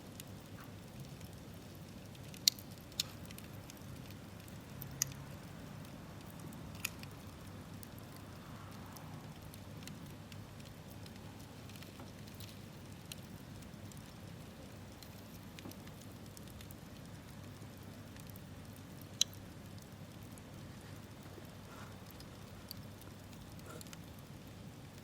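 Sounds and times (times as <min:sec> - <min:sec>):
campfire crackling and popping: 0:00.0 - 0:25.0
fire hissing: 0:20.3 - 0:24.5.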